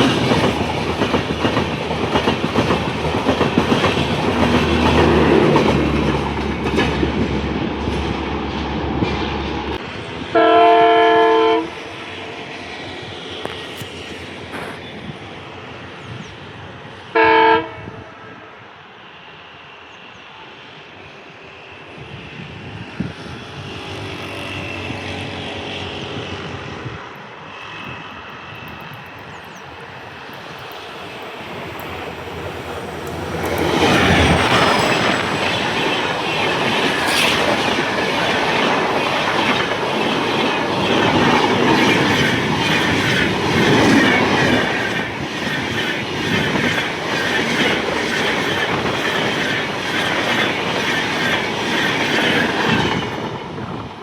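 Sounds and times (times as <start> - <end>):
train rumbling past: 0.0 - 54.0.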